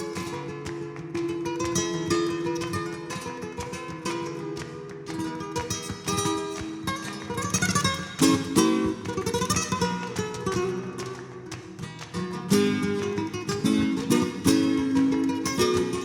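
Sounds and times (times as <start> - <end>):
flamenco acoustic guitar: 0.0 - 16.0.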